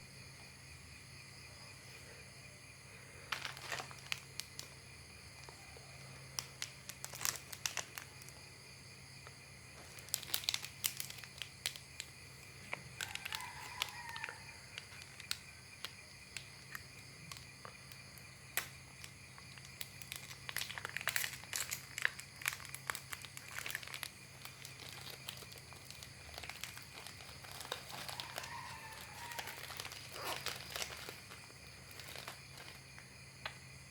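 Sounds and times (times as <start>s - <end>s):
distant rooster crowing: 12.8s - 15.0s, 27.8s - 30.4s.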